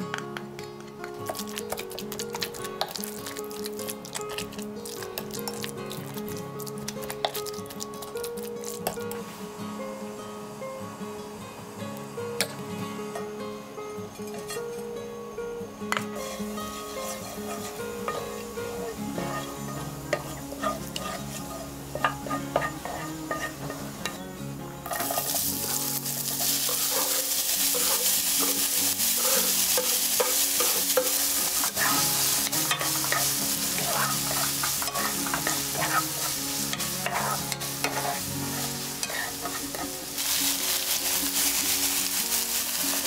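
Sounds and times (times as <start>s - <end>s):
oil sizzling in frying pan: 0.0s - 13.4s, 15.9s - 43.0s
wooden spoon stirring and tapping: 17.0s - 18.4s, 20.1s - 23.5s, 24.9s - 40.0s.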